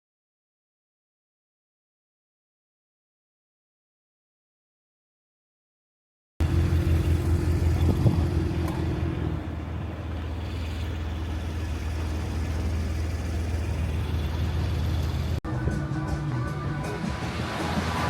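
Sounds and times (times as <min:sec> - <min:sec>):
car engine hum: 0:06.4 - 0:18.0
road noise: 0:06.4 - 0:18.0.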